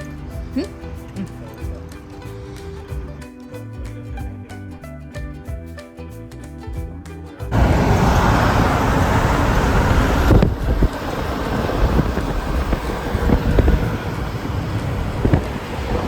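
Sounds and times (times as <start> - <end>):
traffic noise: 0.0 - 3.3, 7.5 - 16.0
low vehicle rumble: 7.4 - 16.0
wind buffeting microphone: 7.5 - 16.0.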